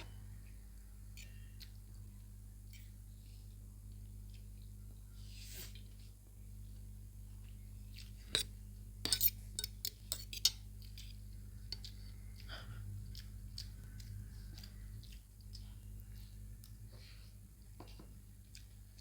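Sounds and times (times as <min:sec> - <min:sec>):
scraping and eating sounds: 0:00.0 - 0:19.0
steady low hum: 0:00.0 - 0:19.0
cutlery clinking on a plate: 0:09.1 - 0:10.6.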